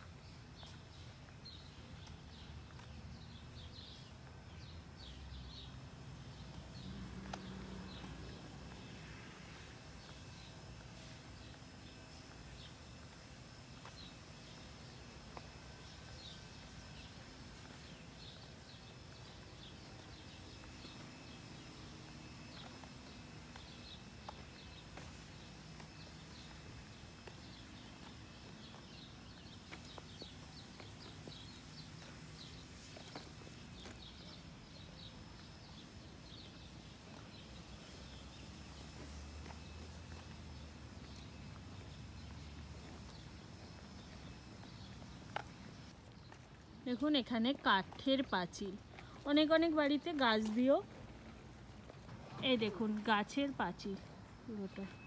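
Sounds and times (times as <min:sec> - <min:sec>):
small birds chirping: 0:00.2 - 0:05.7, 0:09.9 - 0:51.0, 0:52.3 - 0:55.0.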